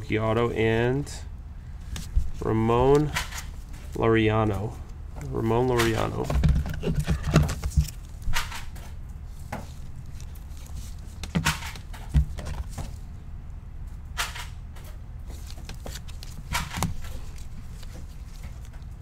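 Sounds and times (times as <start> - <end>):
trading cards swishing and tapping: 5.2 - 13.0, 15.2 - 19.0.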